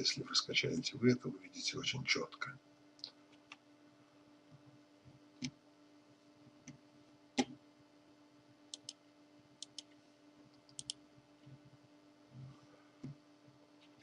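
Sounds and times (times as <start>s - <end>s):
low electrical hum: 0.0s - 14.0s
computer mouse clicks: 8.7s - 9.0s, 9.6s - 10.0s, 10.6s - 11.0s.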